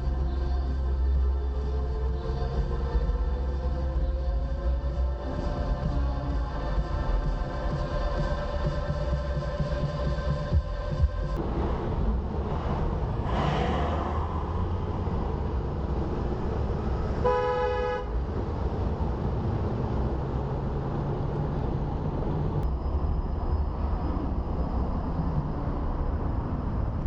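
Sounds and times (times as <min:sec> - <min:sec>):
road traffic rumble: 0:00.0 - 0:27.0
car horn honk: 0:17.2 - 0:18.2.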